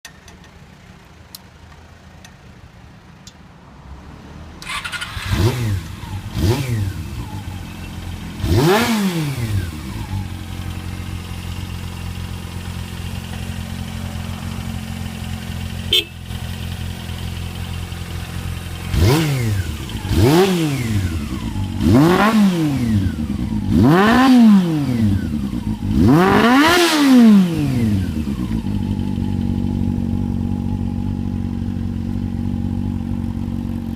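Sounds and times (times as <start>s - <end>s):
motorcycle engine idling and revving: 0.0s - 33.9s
faint clicks: 1.3s - 2.4s.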